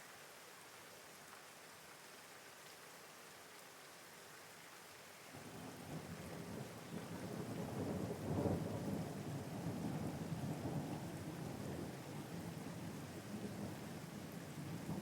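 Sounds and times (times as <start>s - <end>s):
steady rain: 0.0s - 15.0s
thunder rumbling: 5.5s - 15.0s.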